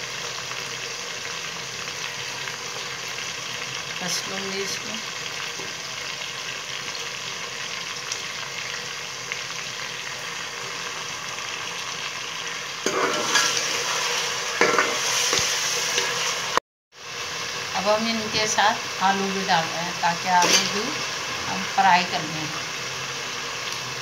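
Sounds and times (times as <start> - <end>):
chicken frying in oil: 0.0 - 24.0
ladle scraping metal pot: 12.9 - 16.4, 20.4 - 20.8.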